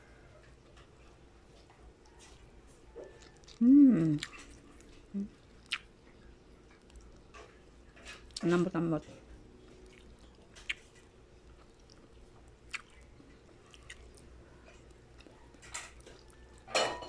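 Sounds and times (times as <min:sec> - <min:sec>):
person chewing: 0:02.0 - 0:08.5, 0:09.6 - 0:16.7.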